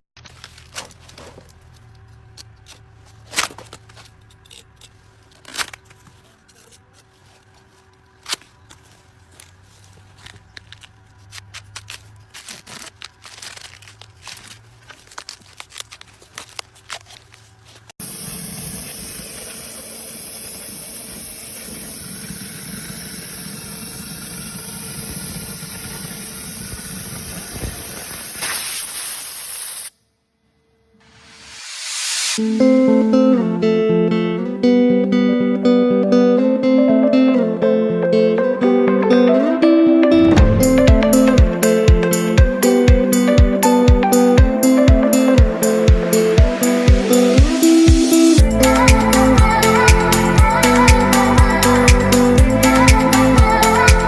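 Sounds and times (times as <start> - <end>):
handling clicks and scrapes: 0.2 - 18.0
steady hissing rush: 18.0 - 29.9, 31.0 - 32.6, 45.6 - 54.0
low rumble: 40.2 - 41.6.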